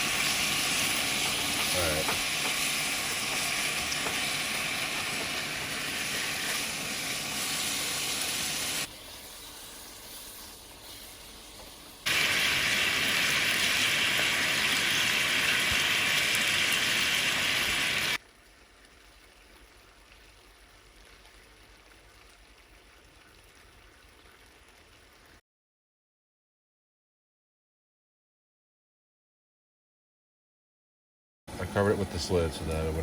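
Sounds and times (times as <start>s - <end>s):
chicken wings sizzling in sauce: 0.0s - 25.4s.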